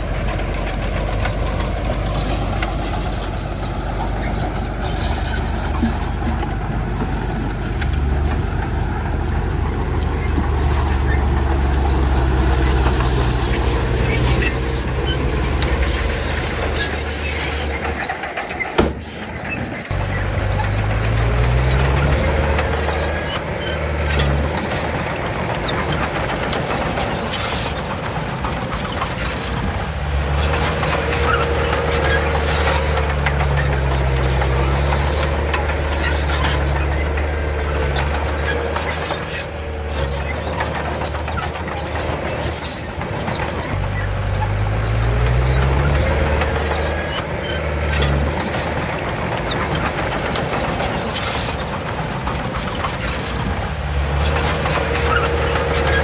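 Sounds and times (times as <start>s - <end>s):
bulldozer diesel engine revving: 0.0s - 56.0s
machine clatter: 0.0s - 56.0s
wavering squeal: 0.0s - 56.0s.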